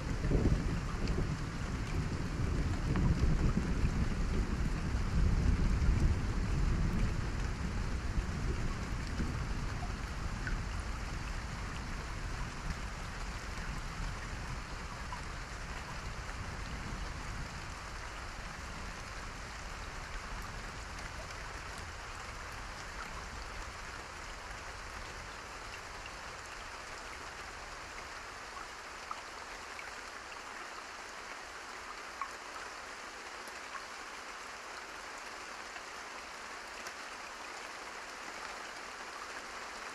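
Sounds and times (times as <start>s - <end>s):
low thunder rumble: 0.0s - 21.4s
steady rain falling: 0.0s - 39.9s.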